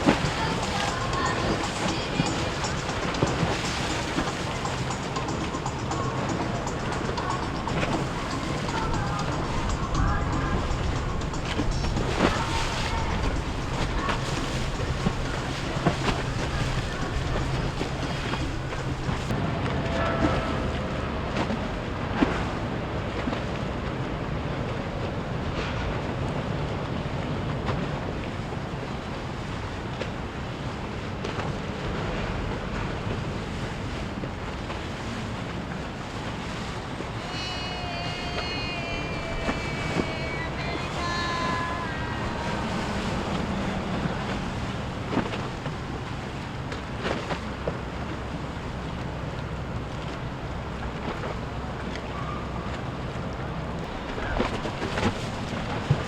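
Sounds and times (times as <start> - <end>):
steady high tones: 0.0 - 19.3, 37.2 - 46.0
wind noise on microphone: 0.0 - 51.9, 52.5 - 56.0
boat engine running: 0.0 - 56.0
churning water: 0.0 - 56.0
waves: 0.0 - 56.0.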